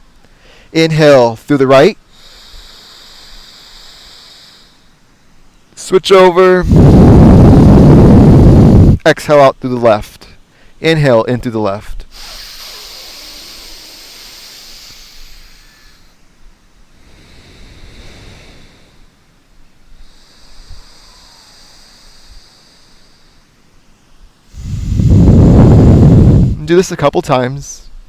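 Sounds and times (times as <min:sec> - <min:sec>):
breathing through nostril: 0:00.3 - 0:00.7, 0:02.1 - 0:05.0, 0:06.6 - 0:09.0, 0:10.5 - 0:10.8, 0:12.1 - 0:16.2, 0:16.9 - 0:19.2, 0:19.9 - 0:23.6, 0:24.4 - 0:26.6.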